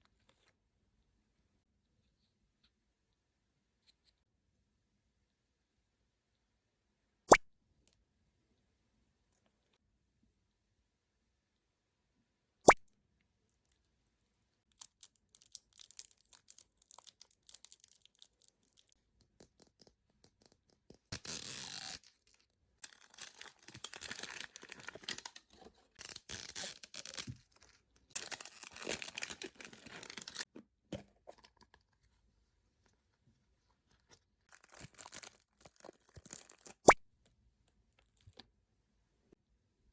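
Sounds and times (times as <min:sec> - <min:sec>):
packaging tearing and crinkling: 0:14.8 - 0:18.9, 0:21.1 - 0:30.5, 0:34.5 - 0:36.8.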